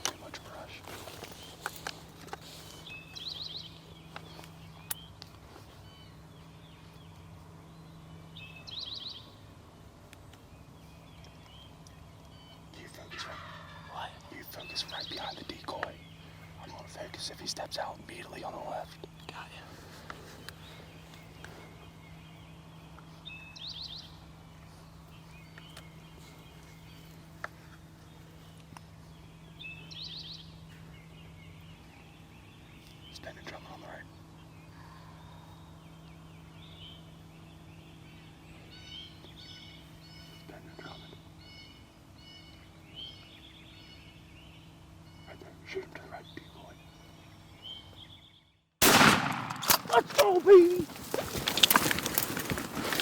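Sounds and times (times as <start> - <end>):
songbird calls: 0.0 - 9.5, 10.4 - 53.0
birds chirping faintly: 0.0 - 53.0
low background hum: 0.0 - 53.0.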